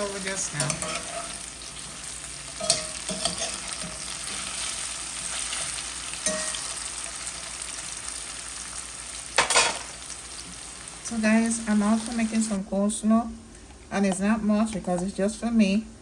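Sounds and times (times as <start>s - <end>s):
food sizzling in hot oil: 0.0s - 12.6s.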